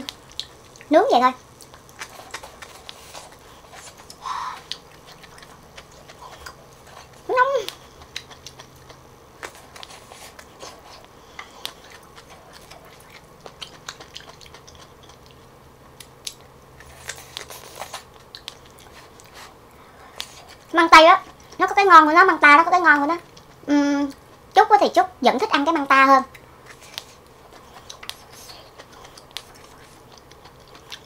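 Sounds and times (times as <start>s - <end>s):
chewing with wet mouth clicks: 0.0s - 21.7s, 22.9s - 24.6s, 26.3s - 31.0s
soft crunches of biting: 26.6s - 31.0s.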